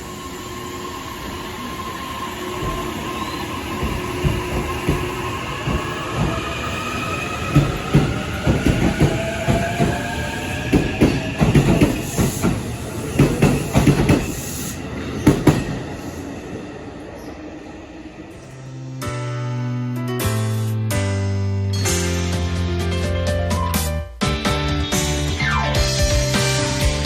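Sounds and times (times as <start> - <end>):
electric train motors whining: 0.0 - 19.0
wheels clacking over rail joints: 2.5 - 16.0.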